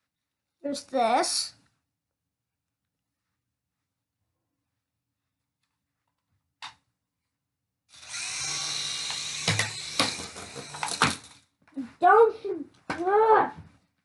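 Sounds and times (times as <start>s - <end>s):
rc helicopter motor whine: 7.9s - 11.4s.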